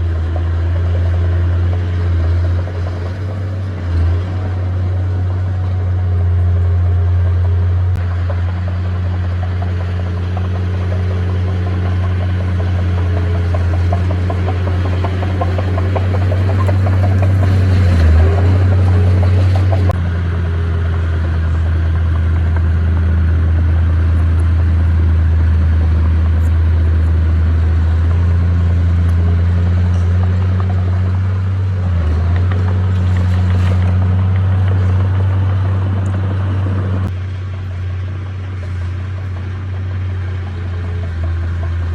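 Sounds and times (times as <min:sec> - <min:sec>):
bulldozer diesel engine droning: 0:00.0 - 0:41.9
rapid rattling: 0:08.4 - 0:20.0.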